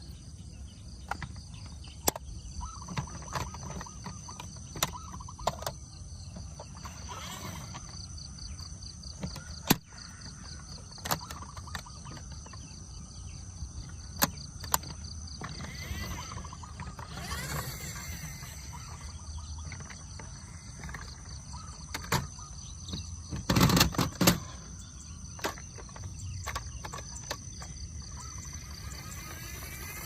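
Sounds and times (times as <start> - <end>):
constant high tone: 13.6 - 30.0
sharp clicks and knocks: 13.8 - 17.6, 19.6 - 24.6, 25.3 - 30.0.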